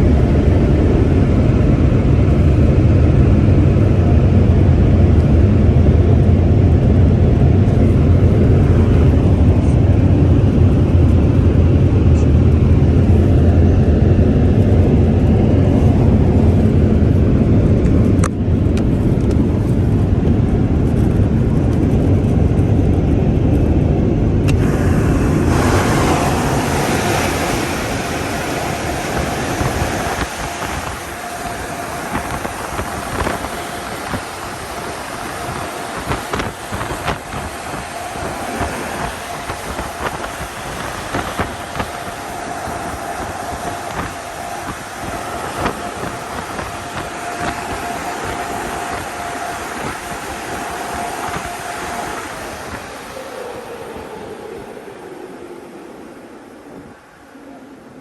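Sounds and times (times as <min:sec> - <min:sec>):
car wash machinery roar: 0:00.0 - 0:58.0
hissing rush of air or water: 0:24.5 - 0:58.0.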